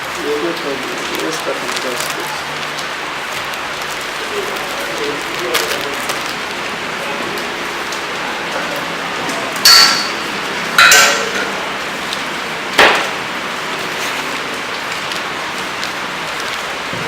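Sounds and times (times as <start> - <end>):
steady hiss: 0.0 - 17.0
metallic clanging knocks: 9.7 - 11.6.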